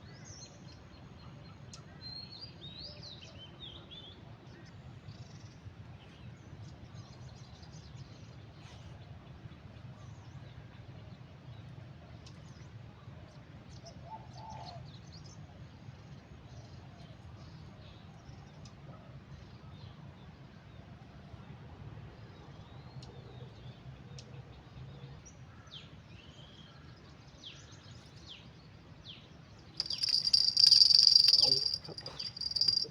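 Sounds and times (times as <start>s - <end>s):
small birds chirping: 29.8s - 32.9s.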